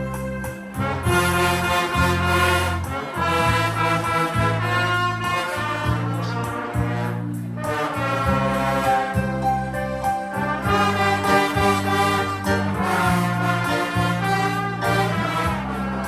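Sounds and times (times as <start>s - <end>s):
band music playing: 0.0s - 16.0s.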